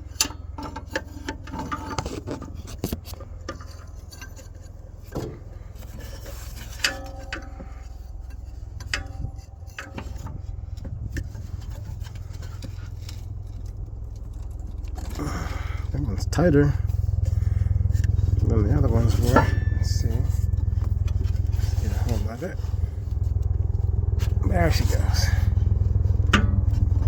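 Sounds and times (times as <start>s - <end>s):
wrench clicking and scraping on bolts: 0.0s - 24.4s
steady low rumble: 0.0s - 27.0s
short metal rings: 3.5s - 23.6s.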